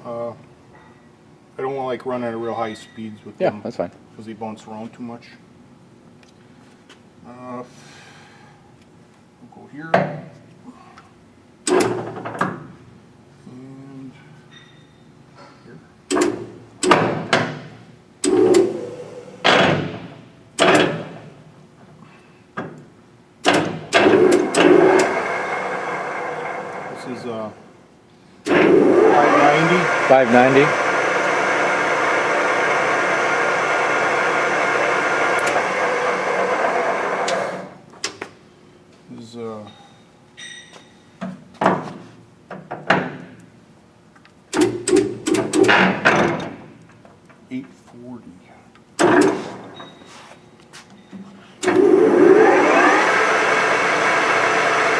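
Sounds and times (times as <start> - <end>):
heavy metal clunks: 16.1 - 21.2.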